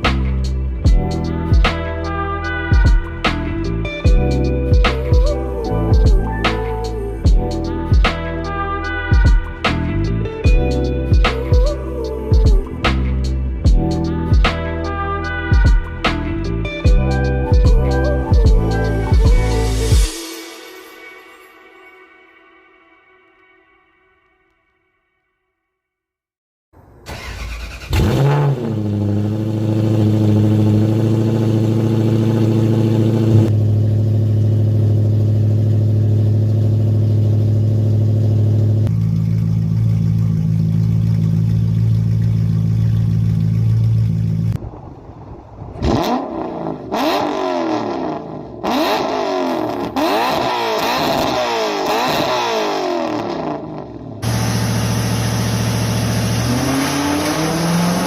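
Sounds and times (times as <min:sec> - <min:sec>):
car engine idling: 0:26.8 - 0:46.8, 0:54.2 - 0:57.6
engine revving: 0:27.1 - 0:39.0, 0:45.4 - 0:58.0.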